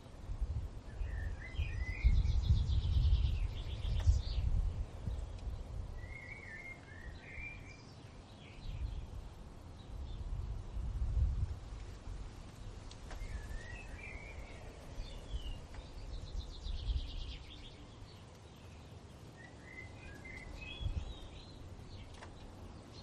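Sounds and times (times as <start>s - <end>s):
songbirds warbling and trilling: 0.0s - 11.0s, 11.8s - 23.0s
low wind rumble: 0.0s - 23.0s.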